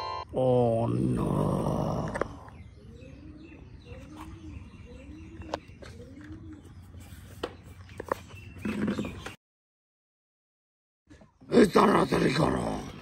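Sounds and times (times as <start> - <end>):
bird cooing: 1.1 - 7.1.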